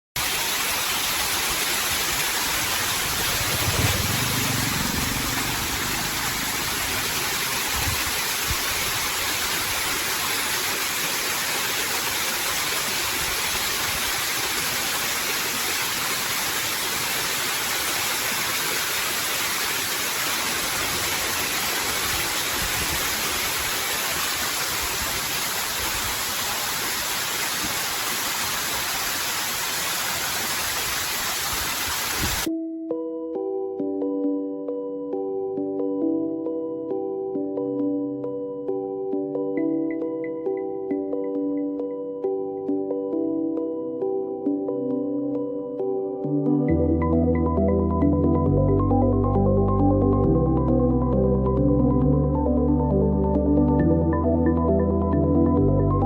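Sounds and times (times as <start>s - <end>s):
steady rushing hiss: 0.2s - 32.5s.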